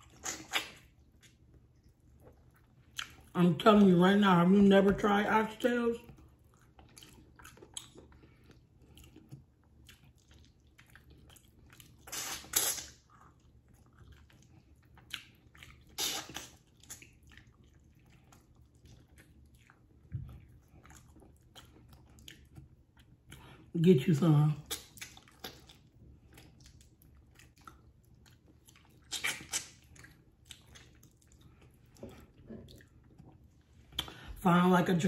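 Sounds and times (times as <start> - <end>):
loud wet mouth noises: 0.0 - 1.0, 12.0 - 13.1, 15.2 - 17.1, 28.9 - 30.0
person chewing and smacking: 0.0 - 23.7, 24.6 - 34.3.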